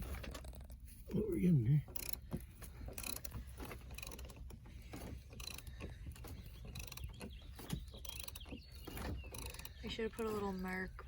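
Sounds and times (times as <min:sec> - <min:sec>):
jack ratcheting clicks: 0:01.9 - 0:10.7.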